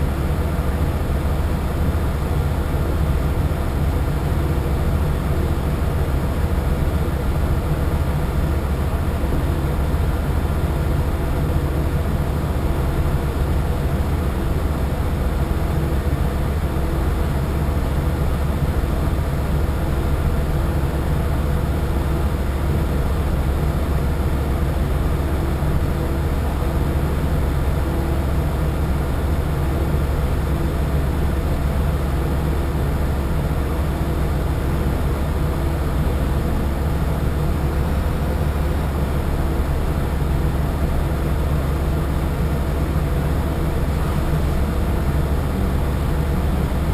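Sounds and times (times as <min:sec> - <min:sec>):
boat engine running: 0:34.0 - 0:46.9.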